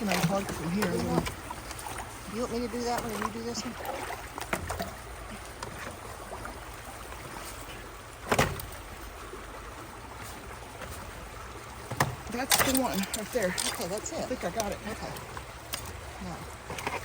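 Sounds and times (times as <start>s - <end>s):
water rushing through culvert: 0.0s - 17.0s
loud thump or splash: 8.2s - 8.8s.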